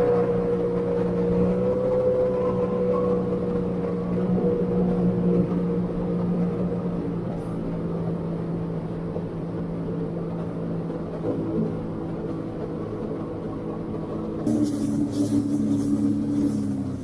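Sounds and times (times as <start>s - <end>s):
jet ski engine running: 11.5s - 17.0s.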